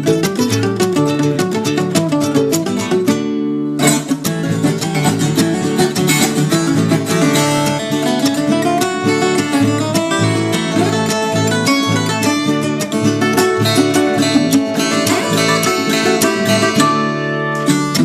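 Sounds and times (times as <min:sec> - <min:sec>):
ten-string guitar plucked and strummed: 0:00.0 - 0:18.0.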